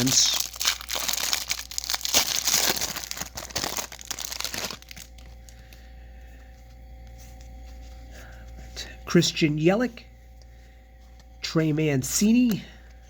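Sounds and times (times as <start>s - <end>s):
plastic wrapping crinkling and tearing: 0.0s - 5.4s
quiet steady hum: 0.0s - 13.0s.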